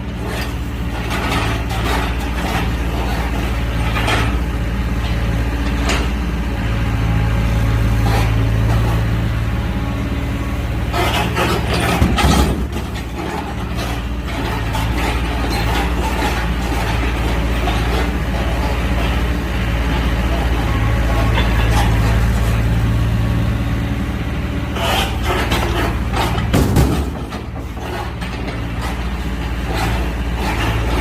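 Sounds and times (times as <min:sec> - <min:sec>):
excavator diesel engine running: 0:00.0 - 0:31.0
machine knocks and clatter: 0:11.0 - 0:19.2, 0:24.9 - 0:31.0.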